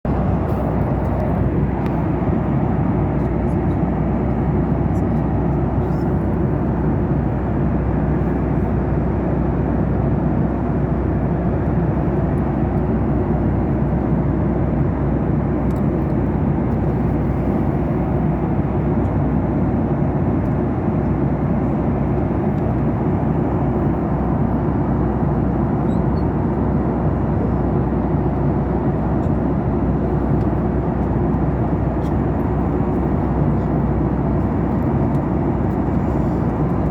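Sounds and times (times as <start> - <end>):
airliner cabin drone: 0.1 - 36.9.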